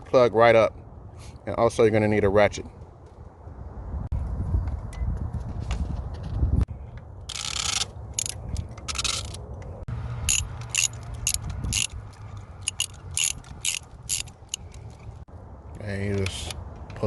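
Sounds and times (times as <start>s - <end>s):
hand ratchet clicking: 7.3s - 9.4s, 10.3s - 15.0s.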